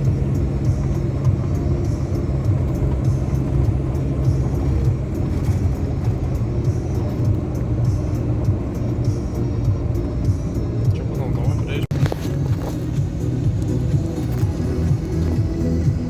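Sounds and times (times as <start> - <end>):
car engine rumble: 0.0 - 16.0
tyre noise: 11.6 - 16.0.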